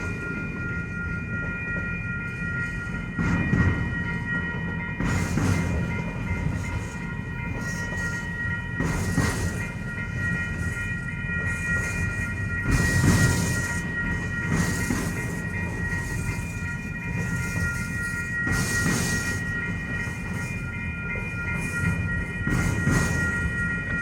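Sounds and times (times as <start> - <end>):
freight train cars rumbling: 0.0 - 24.0
train cars clattering: 0.0 - 24.0.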